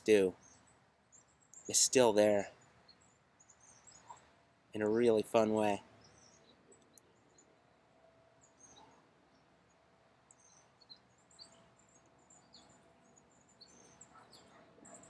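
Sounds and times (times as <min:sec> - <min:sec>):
faint high bird chirps: 0:00.0 - 0:15.0.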